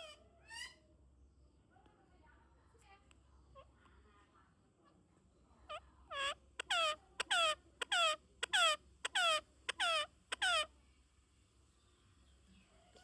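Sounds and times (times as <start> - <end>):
parrot squawking: 5.7 - 10.7.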